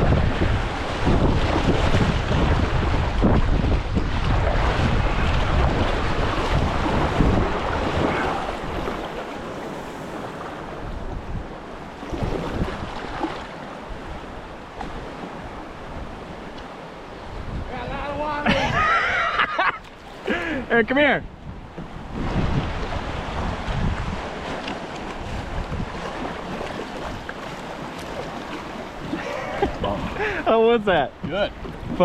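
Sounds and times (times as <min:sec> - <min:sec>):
whitewater rapids rushing: 0:00.0 - 0:10.8
wind buffeting microphone: 0:00.0 - 0:32.0.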